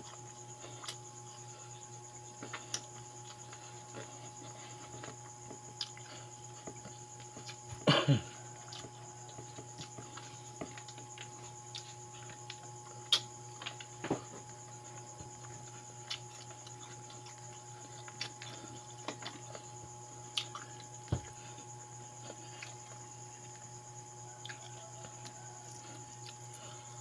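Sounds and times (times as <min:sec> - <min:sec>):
person chewing and lip-smacking: 0:00.0 - 0:01.0, 0:02.4 - 0:07.8, 0:08.6 - 0:13.9, 0:15.4 - 0:21.4, 0:24.4 - 0:26.6
steady background hum: 0:00.0 - 0:27.0.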